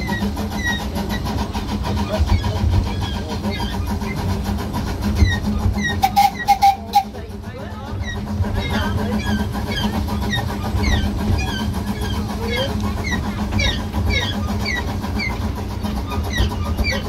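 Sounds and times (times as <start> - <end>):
miniature train rumbling: 0.0 - 17.0.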